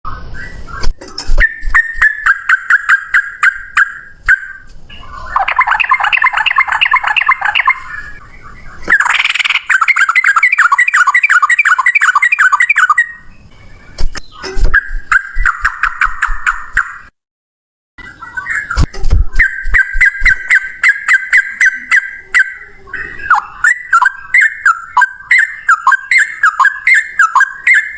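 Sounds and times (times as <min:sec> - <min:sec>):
bird song fast repeated notes: 0:00.1 - 0:17.2, 0:18.0 - 0:27.9.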